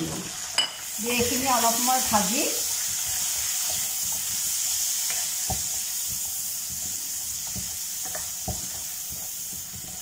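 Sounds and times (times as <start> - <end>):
masala sizzling in hot oil: 0.0 - 10.0
spatula tapping a pan: 2.7 - 10.0.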